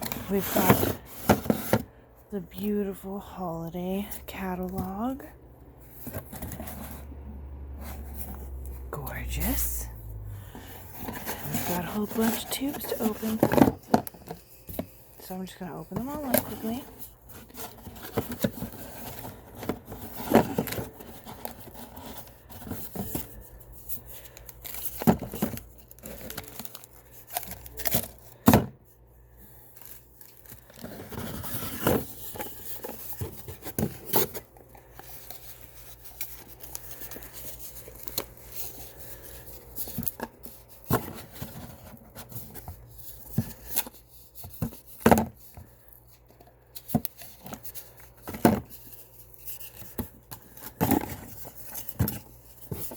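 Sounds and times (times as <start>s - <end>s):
packaging tearing and rustling: 16.2s - 28.4s, 29.7s - 52.9s.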